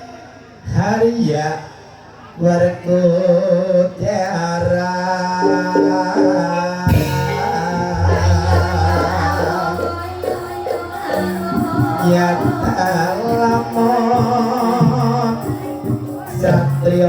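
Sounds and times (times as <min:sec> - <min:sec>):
person singing: 0:05.3 - 0:17.0
gamelan music: 0:05.4 - 0:17.0
jingling percussion: 0:05.8 - 0:17.0
low hum: 0:06.9 - 0:11.9
sharp struck note: 0:06.9 - 0:13.3.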